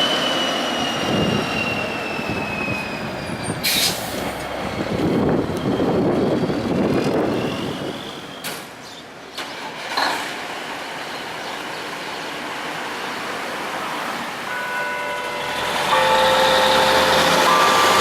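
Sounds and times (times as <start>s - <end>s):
dump truck driving past: 14.7s - 18.0s.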